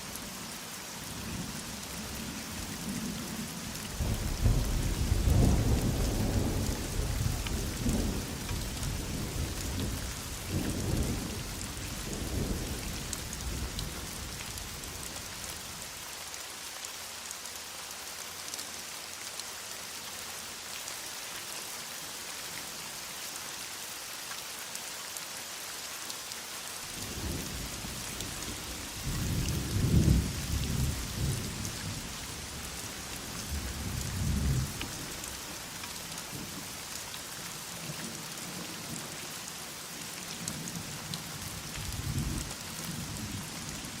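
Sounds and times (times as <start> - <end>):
heavy rain: 0.0 - 44.0
rolling thunder: 3.9 - 13.9, 29.0 - 32.0.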